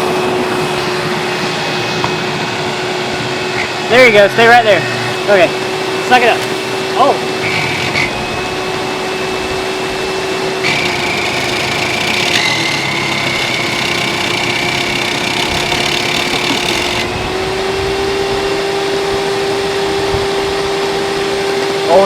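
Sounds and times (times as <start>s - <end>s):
vacuum cleaner motor whine: 0.0s - 22.0s
high whistle: 10.5s - 15.3s.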